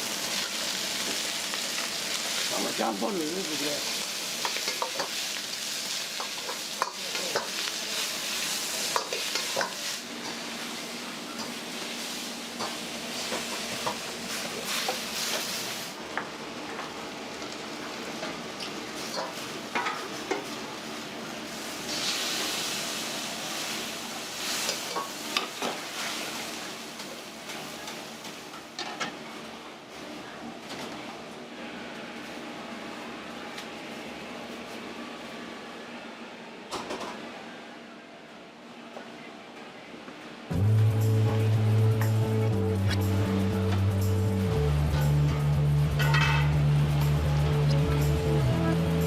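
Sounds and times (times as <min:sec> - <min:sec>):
food sizzling in a wok: 0:00.0 - 0:30.2, 0:40.5 - 0:49.0.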